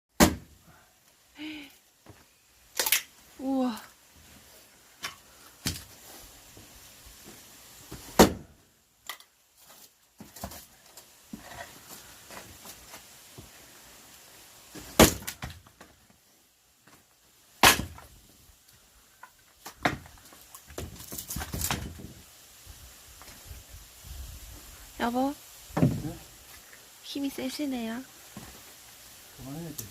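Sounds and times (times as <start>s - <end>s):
axe splitting logs: 0.2s - 0.6s, 8.0s - 8.5s, 14.8s - 15.6s, 17.6s - 18.1s, 19.6s - 20.2s.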